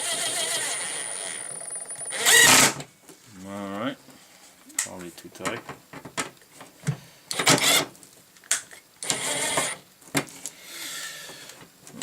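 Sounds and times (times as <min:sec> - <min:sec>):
impact driver running: 0:00.0 - 0:02.8.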